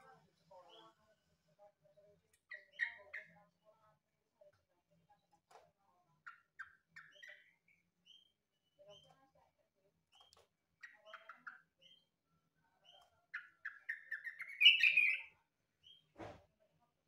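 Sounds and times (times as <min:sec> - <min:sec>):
bird singing: 0:12.8 - 0:16.0.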